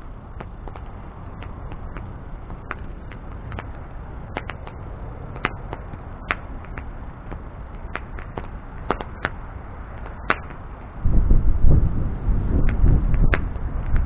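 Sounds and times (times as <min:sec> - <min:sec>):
bonfire crackling and popping: 0:00.0 - 0:14.0
loud low rumble: 0:11.0 - 0:14.0.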